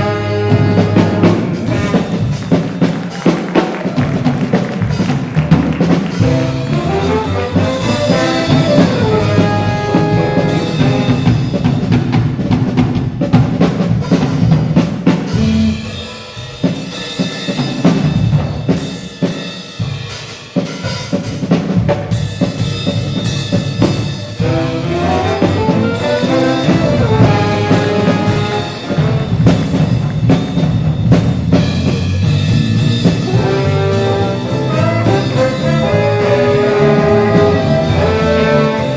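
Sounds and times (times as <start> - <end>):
brass section: 0.0 - 11.8, 14.0 - 17.6, 23.9 - 30.7, 31.5 - 38.9
drum kit steady beat: 0.0 - 38.9
live jazz ensemble: 0.0 - 38.9.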